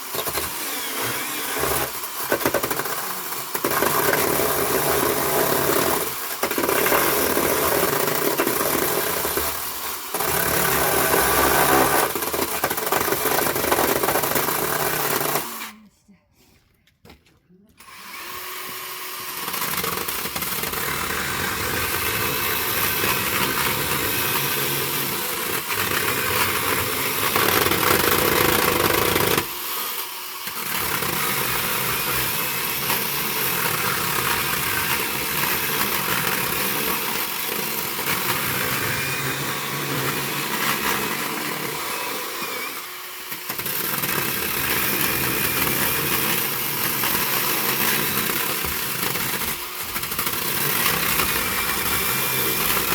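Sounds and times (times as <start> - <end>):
motor running loudly: 0.0 - 2.0.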